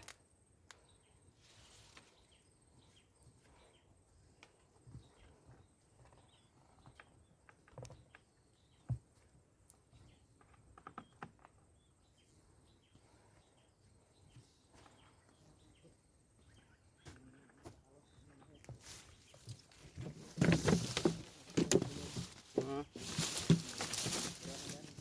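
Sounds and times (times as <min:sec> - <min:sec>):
faint outdoor background: 0:00.0 - 0:25.0
small clicks and knocks: 0:06.9 - 0:08.3, 0:10.4 - 0:11.6.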